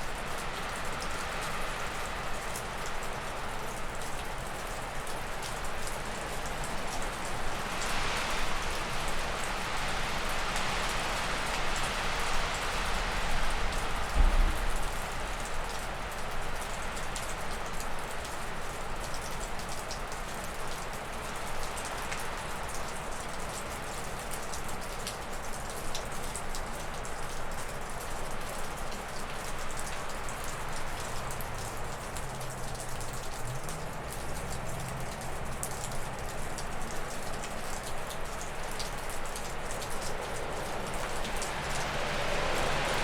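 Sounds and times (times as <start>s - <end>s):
meltwater dripping off roof: 0.0s - 43.0s
wind rushing through trees: 38.4s - 43.0s.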